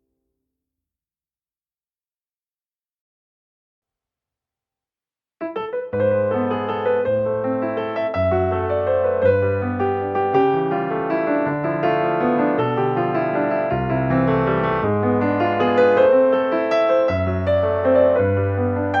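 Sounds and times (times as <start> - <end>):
gentle piano music: 5.4 - 19.0.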